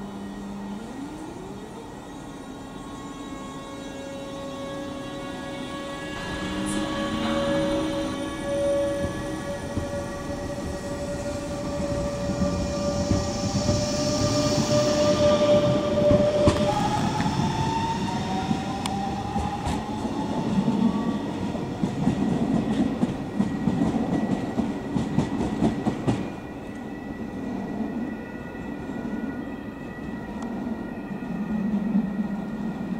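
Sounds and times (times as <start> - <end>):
train rumble inside car: 6.2 - 17.7.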